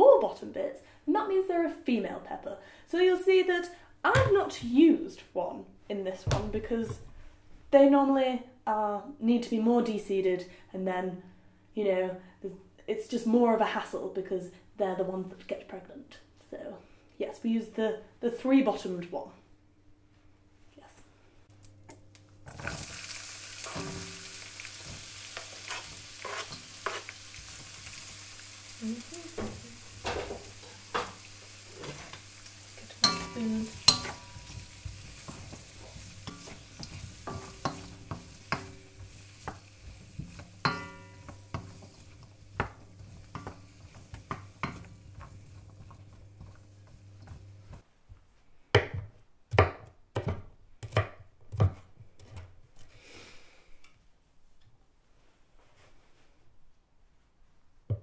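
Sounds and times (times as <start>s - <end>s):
food sizzling in a wok: 22.5s - 47.8s
utensil clacking and scraping pan: 23.6s - 28.1s, 29.4s - 47.8s
knife chopping on a board: 48.8s - 52.5s.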